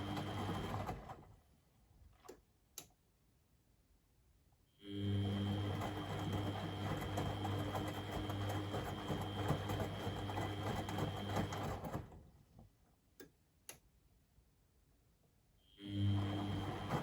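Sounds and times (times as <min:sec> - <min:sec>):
washing machine motor humming: 0:00.0 - 0:01.3, 0:05.0 - 0:12.2, 0:15.9 - 0:17.0.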